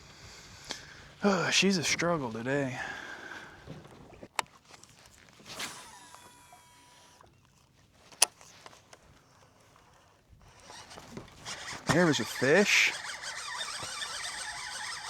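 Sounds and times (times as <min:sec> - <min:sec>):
reel spool spinning: 0:03.8 - 0:15.0
fishing rod swish: 0:05.4 - 0:06.2
fishing reel click: 0:10.6 - 0:15.0.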